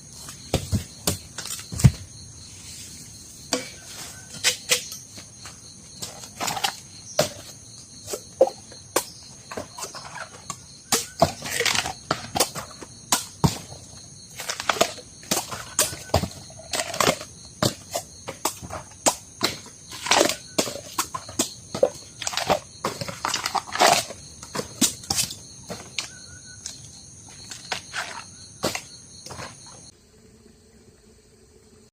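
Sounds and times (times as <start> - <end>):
crickets chirping: 0.0 - 31.9.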